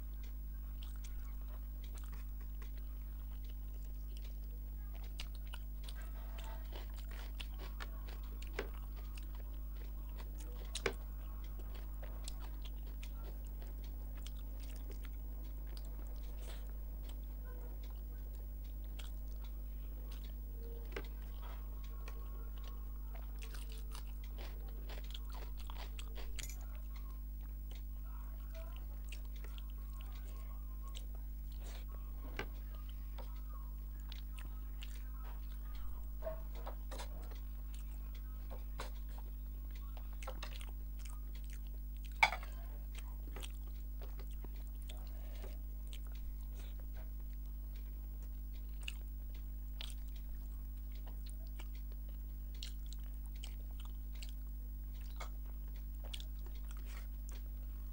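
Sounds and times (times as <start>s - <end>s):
chewing and mouth sounds: 0.0s - 57.9s
steady low hum: 0.0s - 57.9s.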